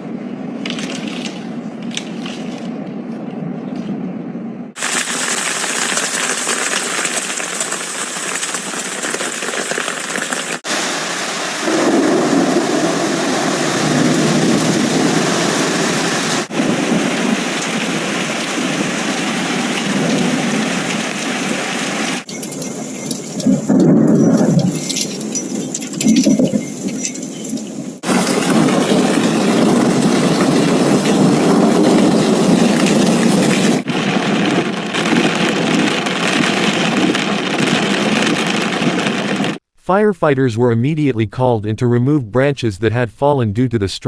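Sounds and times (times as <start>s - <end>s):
hail and rain pelting: 4.8s - 39.6s
wind rumble on microphone: 11.7s - 39.6s.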